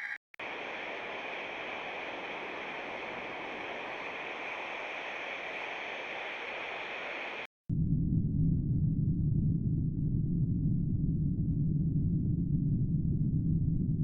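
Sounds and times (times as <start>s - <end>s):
steady hiss: 0.0s - 7.5s.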